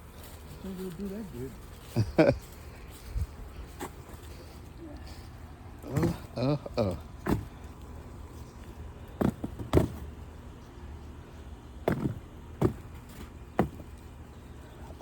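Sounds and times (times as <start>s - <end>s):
short thuds: 7.2s - 7.6s, 9.2s - 10.1s.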